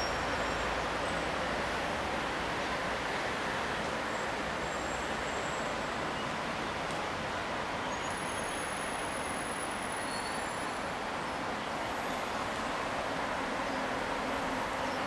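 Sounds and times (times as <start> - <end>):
train rumble and hiss: 0.0 - 15.0.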